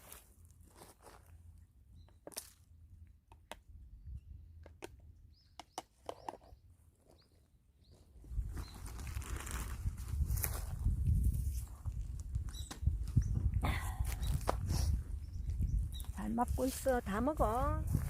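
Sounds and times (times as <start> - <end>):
rustling: 8.3 - 10.8.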